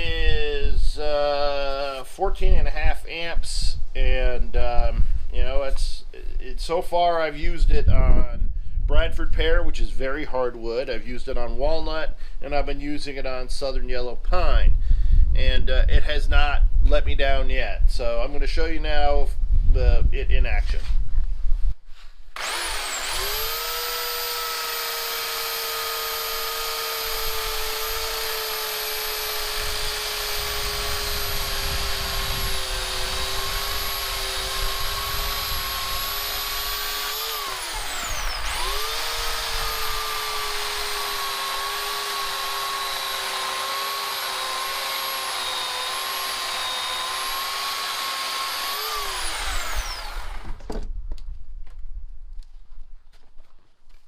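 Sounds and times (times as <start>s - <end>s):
electric chainsaw cutting wood: 22.4s - 50.7s.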